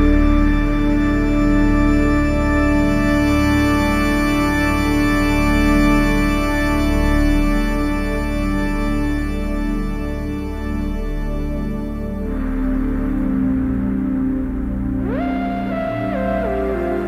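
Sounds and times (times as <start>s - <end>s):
deep pulsing bass: 10.5s - 17.0s.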